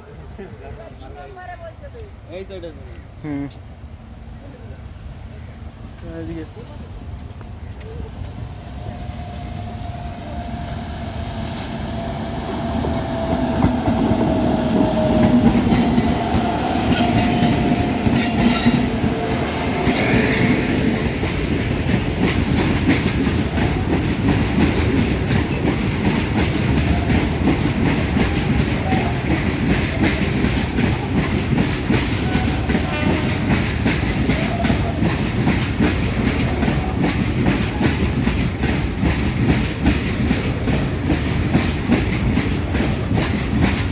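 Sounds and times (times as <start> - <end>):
train rumble: 0.0 - 43.9
wheels clacking over rail joints: 11.6 - 43.9.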